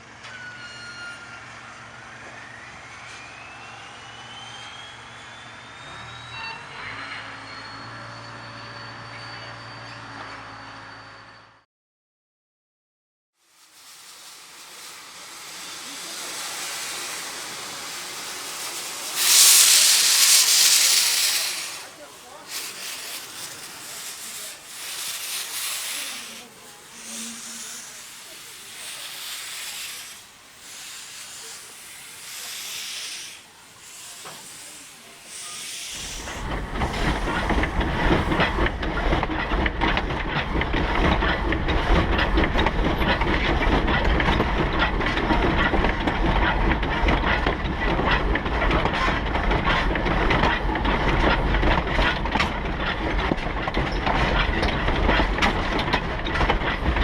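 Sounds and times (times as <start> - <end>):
train rumbling with rail clatter: 0.0 - 10.9, 13.4 - 57.0
locomotive steam hissing: 13.4 - 57.0.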